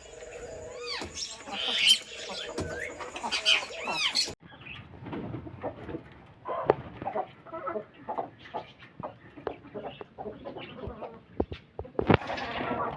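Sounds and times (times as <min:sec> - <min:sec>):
hens clucking: 0:00.0 - 0:04.8, 0:05.6 - 0:12.9.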